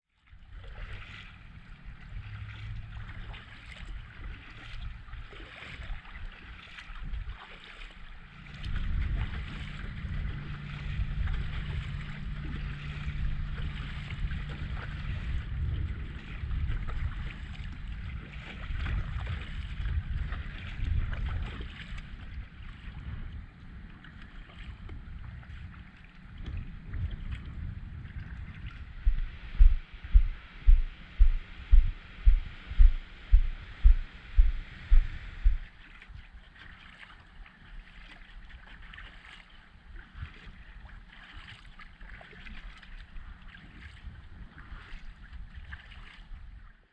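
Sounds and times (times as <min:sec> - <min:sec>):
water splashing: 0:00.1 - 0:46.7
water trickling and dripping: 0:00.2 - 0:46.4
wind on microphone: 0:00.3 - 0:46.7
low thumps: 0:28.5 - 0:35.7.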